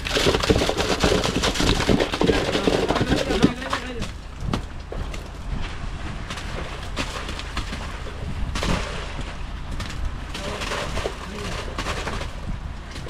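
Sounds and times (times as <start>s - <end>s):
knocks and clatter: 0.0s - 5.4s.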